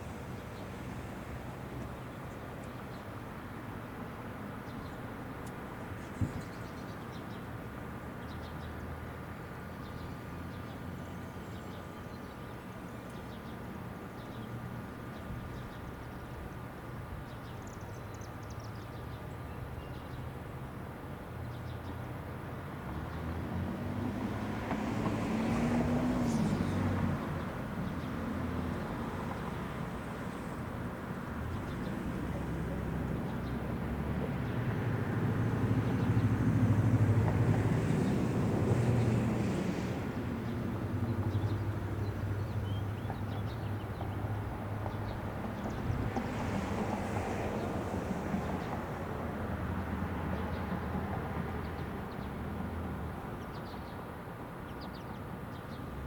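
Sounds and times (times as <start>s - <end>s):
vehicles passing: 0.0s - 6.4s, 20.5s - 56.0s
road traffic rumble: 0.0s - 18.0s, 18.6s - 56.0s.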